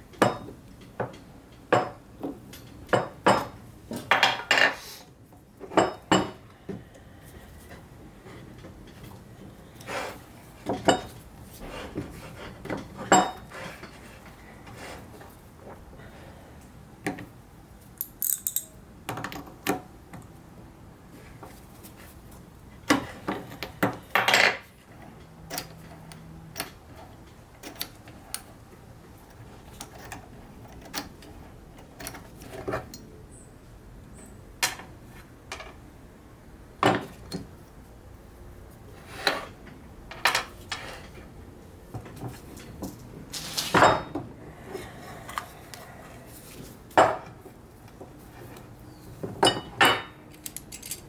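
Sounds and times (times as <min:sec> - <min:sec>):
metal vise parts clinking: 0:18.0 - 0:18.8, 0:49.4 - 0:51.0.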